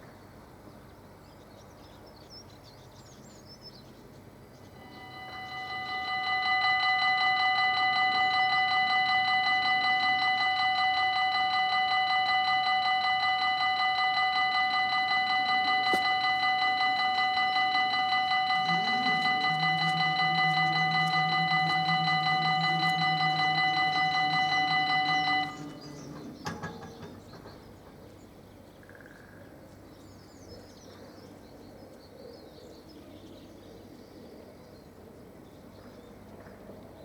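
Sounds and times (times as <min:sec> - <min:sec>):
level crossing warning bell ringing: 0:04.8 - 0:28.1.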